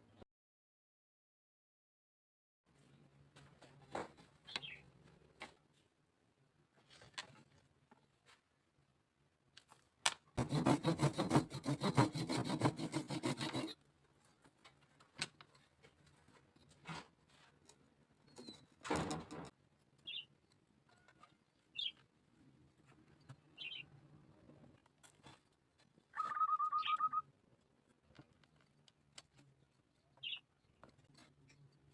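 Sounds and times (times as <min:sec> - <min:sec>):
small bird chirping: 0:04.5 - 0:04.9, 0:20.0 - 0:22.0, 0:23.2 - 0:23.9, 0:26.1 - 0:27.3, 0:30.1 - 0:30.8
hand tool scraping bamboo: 0:10.4 - 0:13.8.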